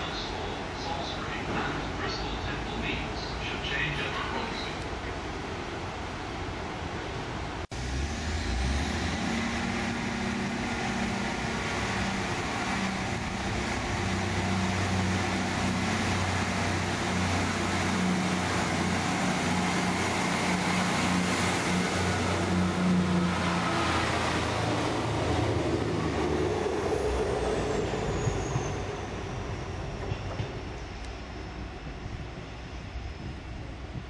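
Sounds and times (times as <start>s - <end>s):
train engine hum: 0.0s - 34.0s
train moving along platform: 0.0s - 34.0s.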